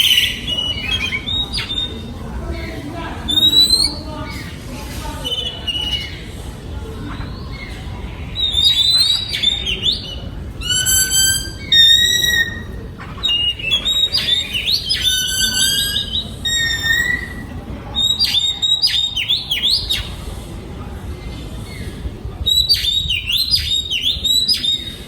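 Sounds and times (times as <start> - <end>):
bird singing whistled phrases: 0.0 - 2.0, 3.3 - 4.1, 8.4 - 20.1, 22.5 - 25.0.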